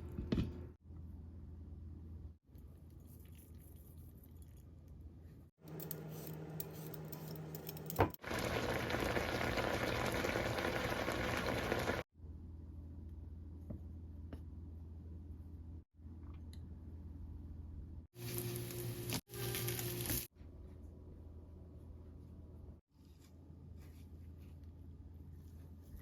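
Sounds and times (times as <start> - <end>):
kitchen cooking sounds: 5.6 - 12.0, 18.2 - 20.3.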